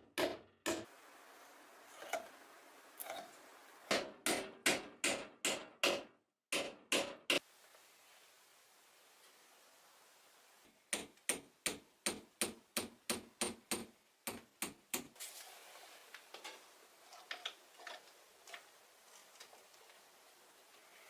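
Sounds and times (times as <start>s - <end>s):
hammer striking nails: 0.0s - 0.9s, 3.9s - 7.4s, 10.9s - 15.1s.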